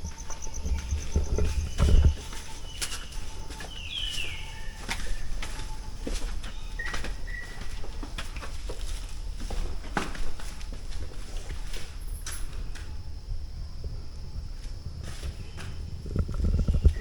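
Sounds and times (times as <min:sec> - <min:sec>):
forest birds whistling: 0:00.0 - 0:08.0
footsteps walking: 0:00.0 - 0:12.9, 0:14.6 - 0:15.8.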